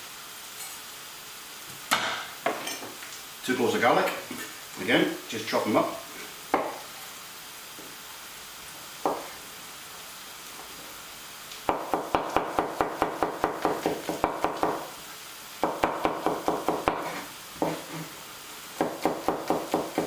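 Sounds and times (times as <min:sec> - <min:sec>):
onions sizzling in frying pan: 0:00.0 - 0:20.0
knife chopping on board: 0:06.6 - 0:06.8, 0:09.0 - 0:09.3, 0:11.7 - 0:14.9, 0:15.6 - 0:18.1, 0:18.8 - 0:20.0.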